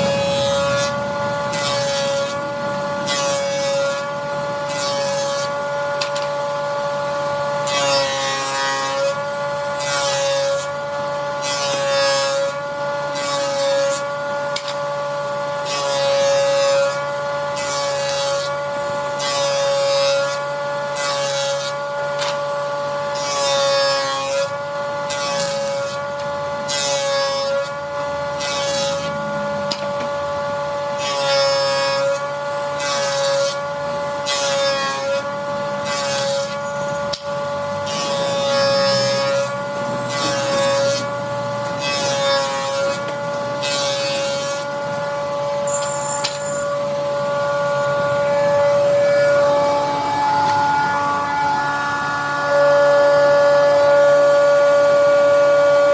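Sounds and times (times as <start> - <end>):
power tool whining: 0.0 - 55.9
rasping hiss cutting wood: 31.0 - 47.6.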